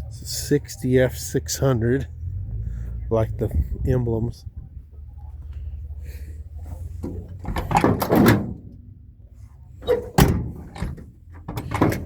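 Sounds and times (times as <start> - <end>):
clunks and knocks: 6.8 - 9.0, 9.8 - 12.0.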